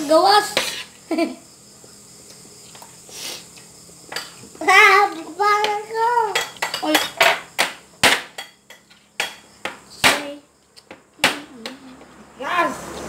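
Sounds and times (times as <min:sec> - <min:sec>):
cutlery and plates clinking: 0:06.4 - 0:07.4.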